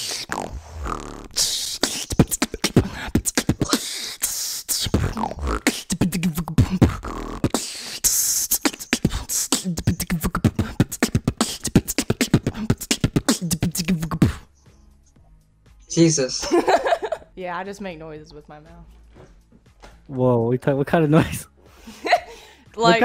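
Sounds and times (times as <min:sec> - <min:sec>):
beatboxing: 0:00.0 - 0:14.6.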